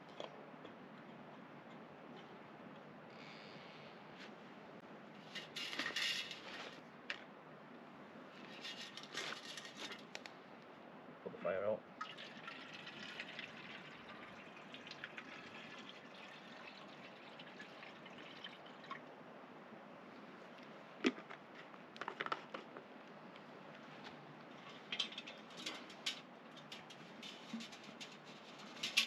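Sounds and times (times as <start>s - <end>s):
liquid pouring and dripping: 12.0s - 19.1s.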